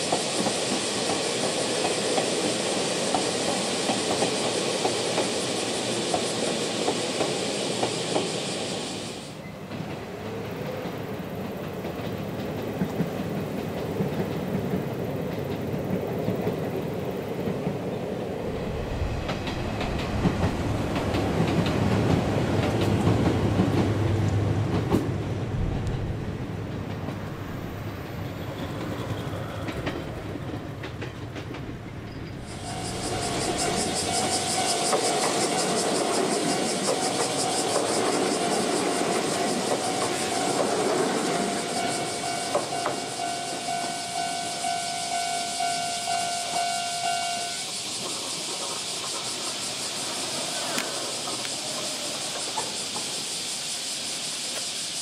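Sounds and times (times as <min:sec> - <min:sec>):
electric trains running past: 0:00.0 - 0:55.0
deep rumble: 0:25.4 - 0:27.9.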